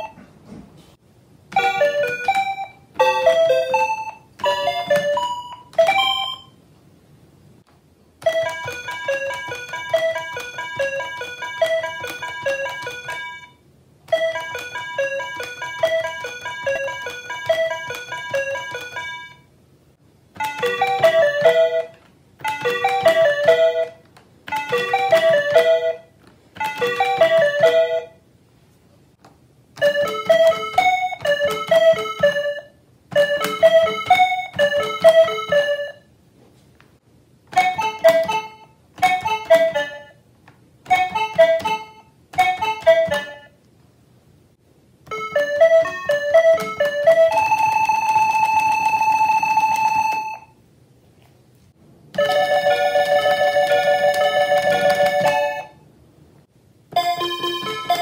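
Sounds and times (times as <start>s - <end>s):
calculator beeping melody: 1.5s - 6.6s, 8.2s - 19.5s, 20.4s - 28.2s, 29.8s - 36.1s, 37.6s - 40.2s, 40.9s - 43.6s, 45.1s - 50.6s, 52.2s - 55.8s, 57.0s - 58.0s.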